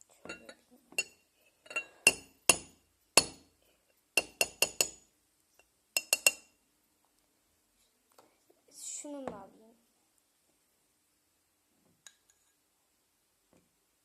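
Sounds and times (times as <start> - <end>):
utensil clinking on glass: 6.0 - 6.5.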